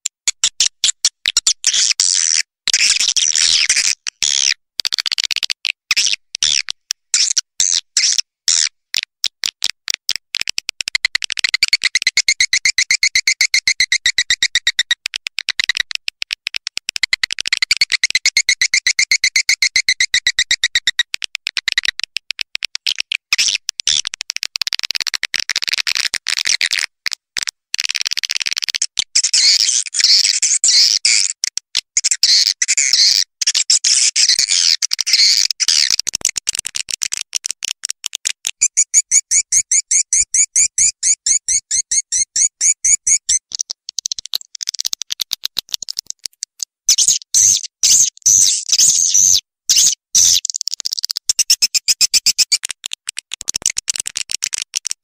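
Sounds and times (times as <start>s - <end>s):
swiftlet chirps and clicks: 10.8s - 16.1s, 16.8s - 22.1s, 38.4s - 46.2s, 46.9s - 54.8s.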